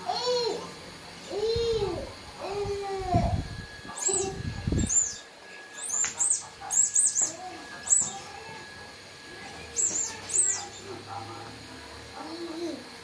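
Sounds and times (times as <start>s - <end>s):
high chirps: 3.9s - 8.3s, 9.8s - 10.9s.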